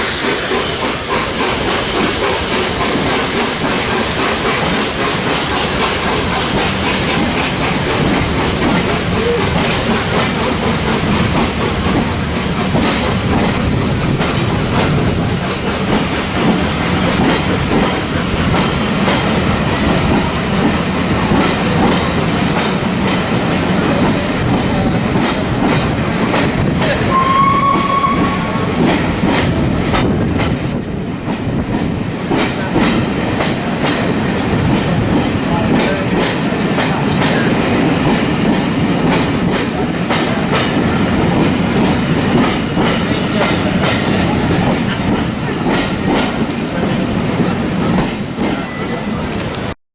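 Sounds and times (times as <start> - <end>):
train wheels clacking on rails: 0.0 - 49.8
high whistle-like tone: 27.1 - 28.9.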